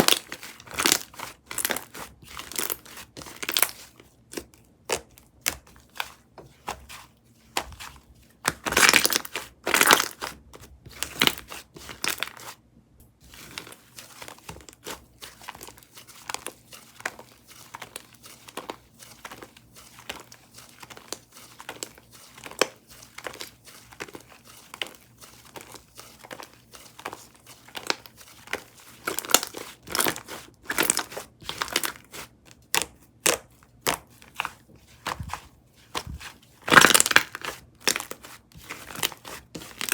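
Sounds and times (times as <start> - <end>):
slime crackling and popping: 0.0 - 3.8, 8.4 - 10.3, 29.0 - 32.0, 36.0 - 39.9.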